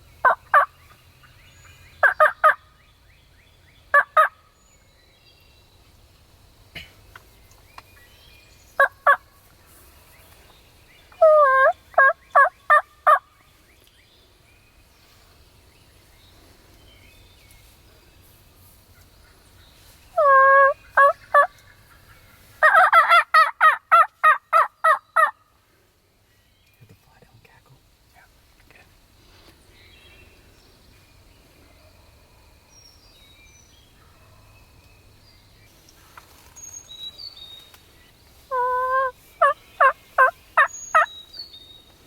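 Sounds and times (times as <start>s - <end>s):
turkey yelping: 11.2s - 13.2s, 20.2s - 21.5s, 22.6s - 25.4s, 38.5s - 41.1s.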